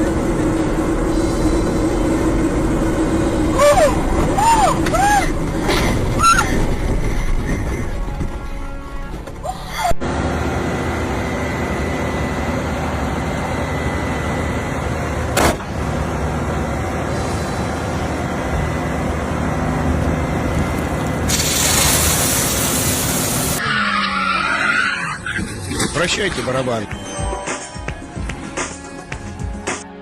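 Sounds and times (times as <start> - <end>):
car engine running: 0.0 - 8.8, 10.0 - 23.6.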